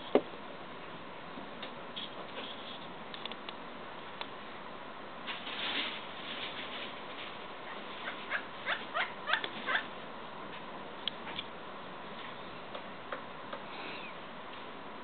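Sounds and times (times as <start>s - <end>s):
woodpecker calling: 7.7s - 9.9s.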